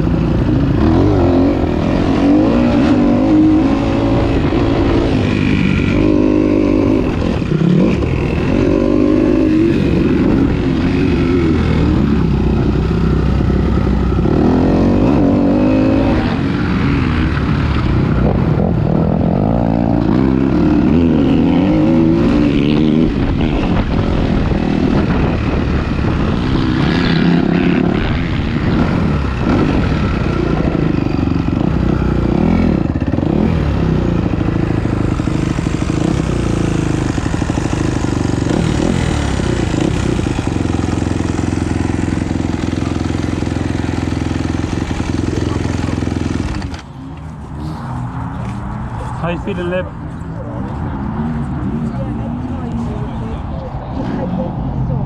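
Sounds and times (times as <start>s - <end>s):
motocross bike engine revving: 0.0s - 48.6s
wind rumble on microphone: 17.4s - 40.9s.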